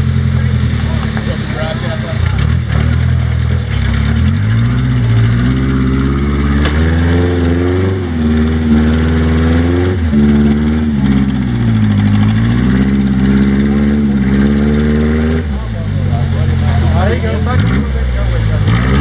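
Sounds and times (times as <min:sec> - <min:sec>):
engine revving under load: 0:00.0 - 0:19.0
sharp knock: 0:06.5 - 0:07.2.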